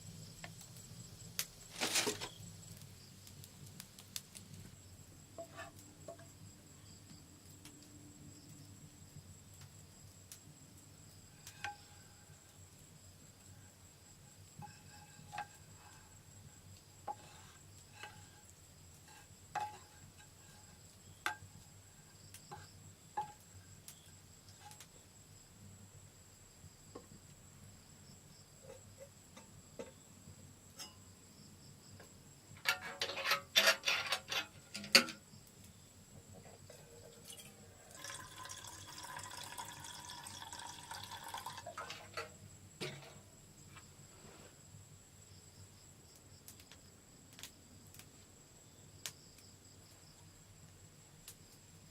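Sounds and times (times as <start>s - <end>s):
insects droning: 0.0s - 51.9s
water pouring into container: 37.9s - 41.9s.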